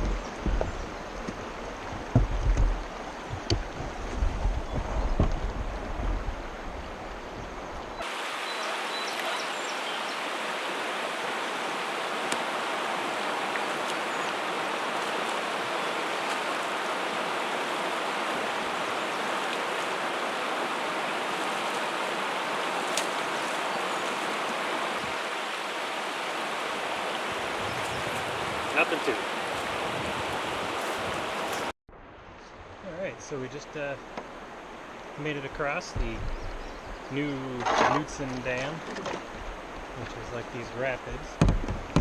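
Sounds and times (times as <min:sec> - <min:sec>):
low rumbling wind-like noise: 0:00.0 - 0:08.0, 0:35.9 - 0:37.2
water rushing over rapids: 0:08.0 - 0:31.8.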